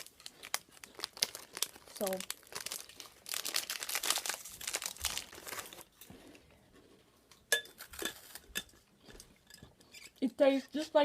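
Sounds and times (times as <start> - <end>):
plastic wrapper crinkling: 0.0 - 6.1.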